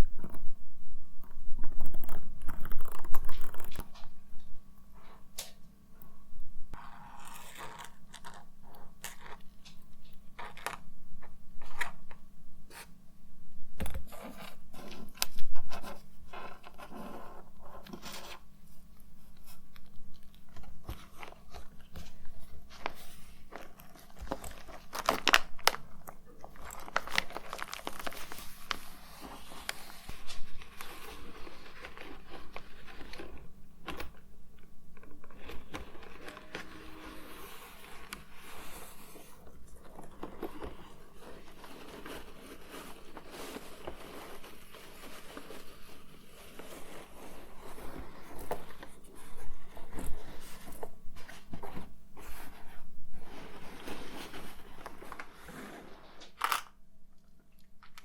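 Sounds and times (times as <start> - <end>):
packaging rustling and crinkling: 19.2 - 56.7.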